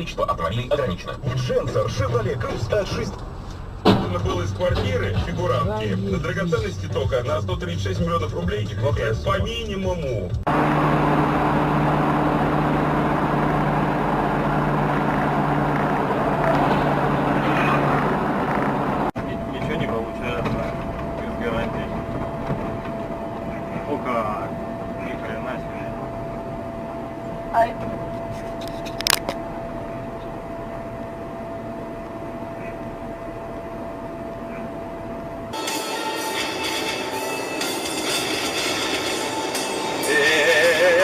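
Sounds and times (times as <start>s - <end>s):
car engine and road noise: 0.0s - 41.0s
thin constant whine: 10.5s - 41.0s.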